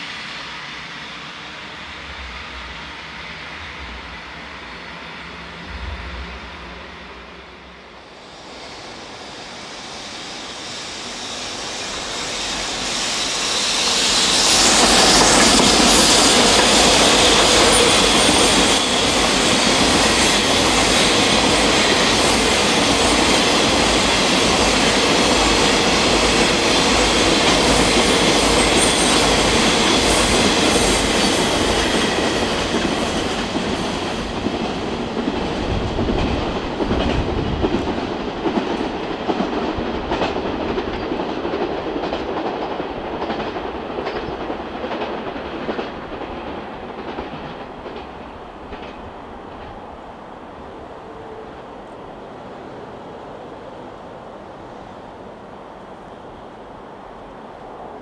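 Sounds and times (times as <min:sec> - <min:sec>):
train wheels clacking over rail joints: 0:12.8 - 0:49.8.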